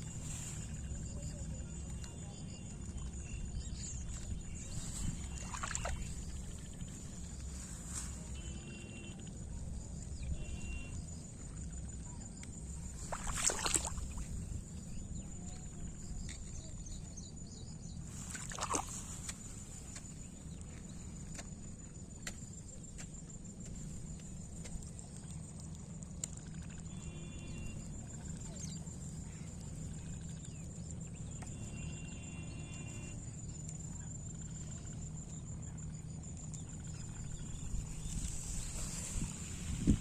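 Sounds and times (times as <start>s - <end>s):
low wind rumble: 36.6s - 40.0s.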